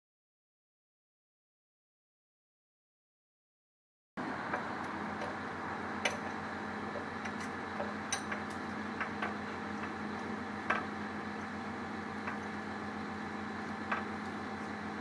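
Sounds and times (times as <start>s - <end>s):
truck engine idling: 4.2s - 15.0s.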